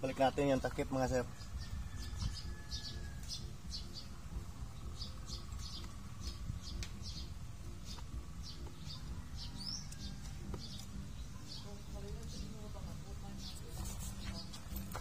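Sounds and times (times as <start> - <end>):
small bird chirping: 1.4 - 15.0
steady low rumble: 3.4 - 9.8.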